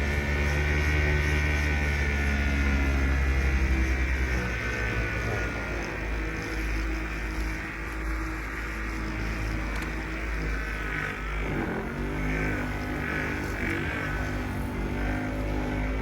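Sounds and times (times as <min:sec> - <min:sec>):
electric polisher running: 0:00.0 - 0:16.0.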